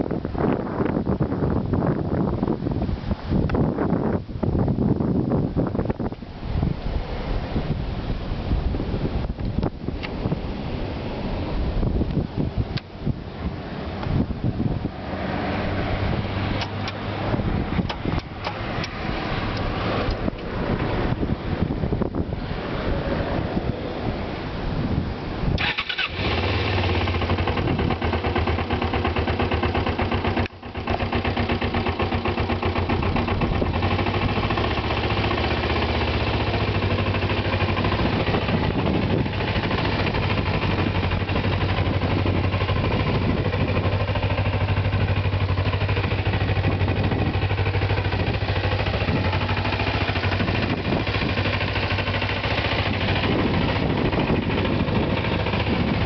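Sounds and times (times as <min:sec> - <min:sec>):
motorcycle engine idling: 0:25.6 - 0:56.0.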